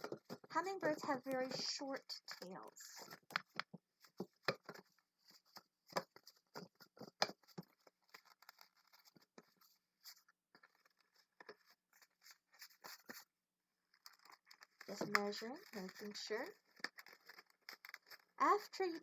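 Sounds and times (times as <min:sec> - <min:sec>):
balloon squeaking and rubbing: 0:14.7 - 0:19.0.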